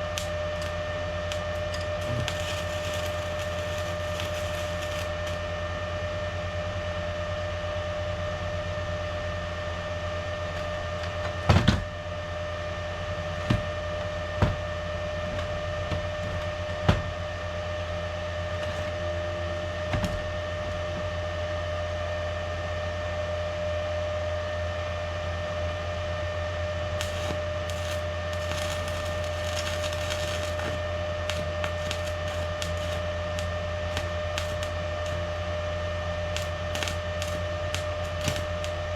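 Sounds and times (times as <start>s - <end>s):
light crackling: 0.0s - 5.4s, 18.4s - 19.0s, 27.0s - 35.3s, 36.3s - 38.8s
electrical machine hum: 0.0s - 38.9s
sharp knocks: 14.4s - 14.7s.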